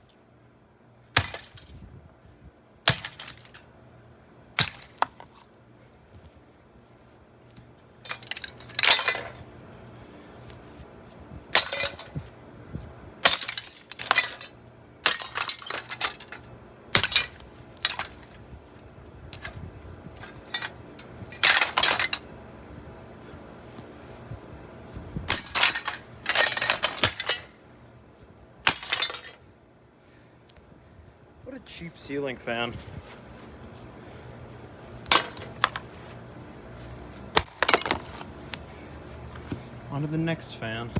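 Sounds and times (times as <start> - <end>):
ceiling fan being smashed: 1.2 - 1.8, 2.9 - 3.6, 4.6 - 5.2, 8.1 - 9.4, 11.5 - 12.2, 13.2 - 18.4, 21.4 - 22.2, 25.3 - 27.6, 28.7 - 29.4, 35.0 - 35.8, 37.3 - 38.2.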